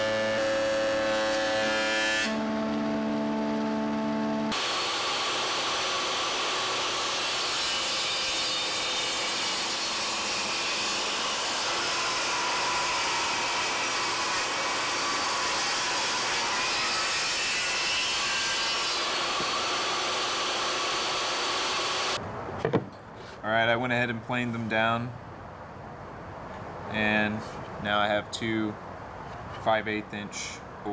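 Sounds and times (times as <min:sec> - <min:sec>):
power tool cutting wood: 0:00.0 - 0:22.2.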